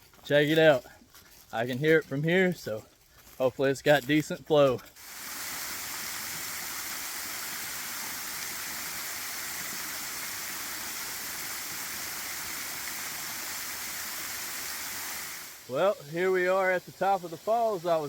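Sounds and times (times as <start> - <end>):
waterfall rushing: 5.0 - 18.0.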